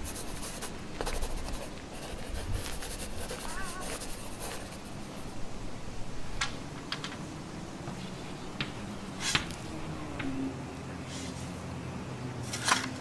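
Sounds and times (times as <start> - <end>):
pen scratching on paper: 0.0 - 5.3.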